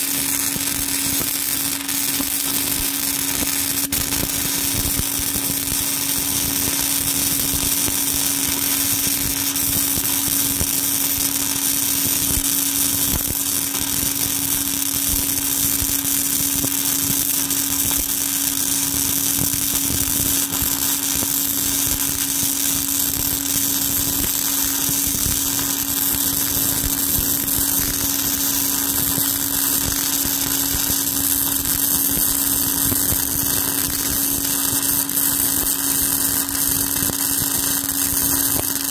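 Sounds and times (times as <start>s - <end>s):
welding arc crackling: 0.0s - 38.9s.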